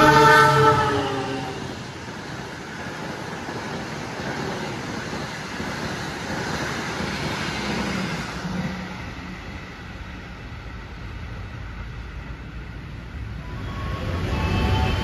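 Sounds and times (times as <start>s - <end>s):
train horn: 0.0s - 1.7s, 13.4s - 15.0s
passenger train rushing past: 0.0s - 15.0s.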